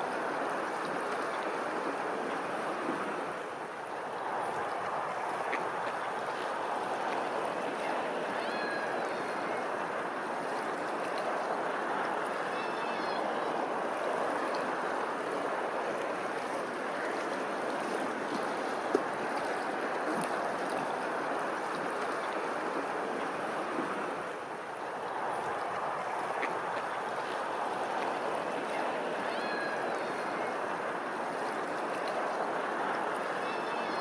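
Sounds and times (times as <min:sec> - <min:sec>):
running water rushing: 0:00.0 - 0:34.0.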